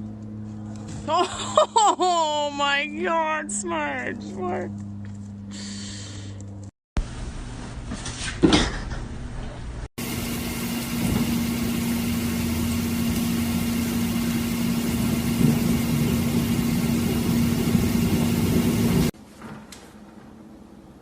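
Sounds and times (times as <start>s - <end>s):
motor hum: 10.0s - 19.1s.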